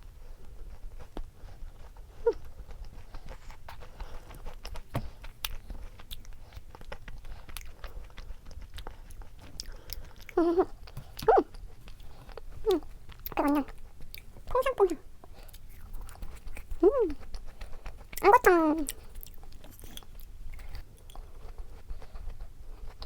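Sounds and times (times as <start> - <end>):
chewing and crunching: 0.1 - 23.0.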